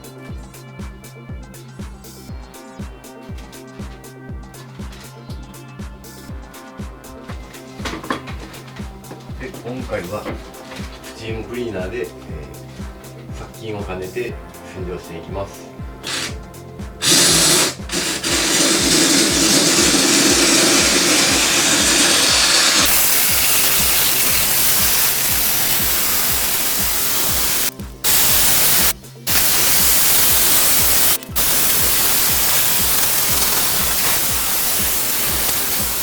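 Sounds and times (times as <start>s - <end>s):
steam cleaner hissing: 16.0s - 36.0s.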